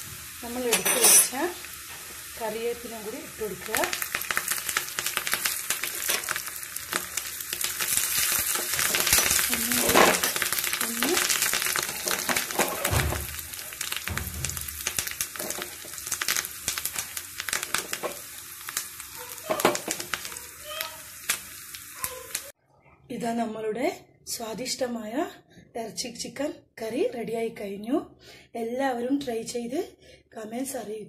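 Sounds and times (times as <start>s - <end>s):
leaves crackling in hot oil: 0.0s - 22.6s.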